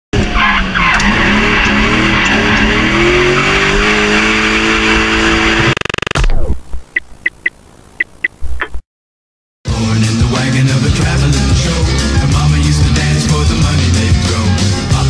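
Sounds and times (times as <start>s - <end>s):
engine revving hard: 0.2s - 6.1s.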